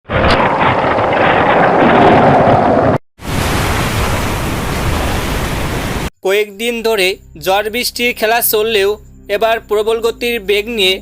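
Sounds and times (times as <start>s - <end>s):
storm wind: 0.1s - 6.1s
rushing water: 3.2s - 6.1s.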